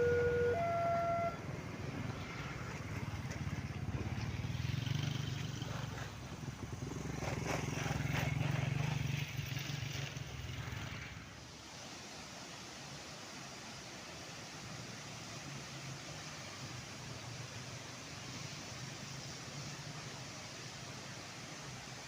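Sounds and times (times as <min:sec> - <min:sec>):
two-note warning tone: 0:00.0 - 0:01.5
train rumbling past: 0:00.0 - 0:12.2.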